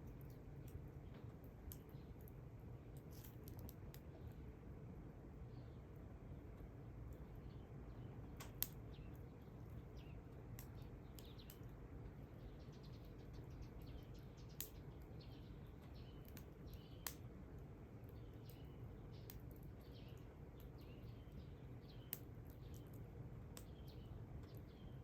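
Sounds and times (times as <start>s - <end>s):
campfire crackling: 0.0s - 4.6s, 8.2s - 25.0s
campfire pops: 8.4s - 9.2s, 10.5s - 11.7s, 14.6s - 15.0s, 15.8s - 17.4s, 18.4s - 20.8s, 21.9s - 24.6s.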